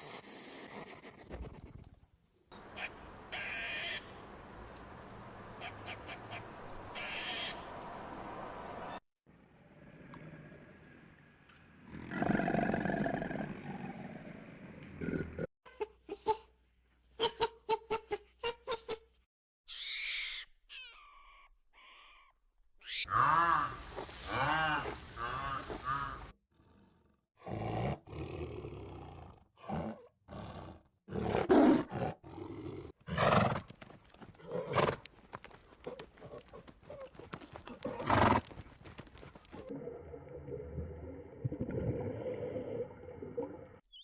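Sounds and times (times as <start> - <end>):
high animal calls: 19.7 - 26.3.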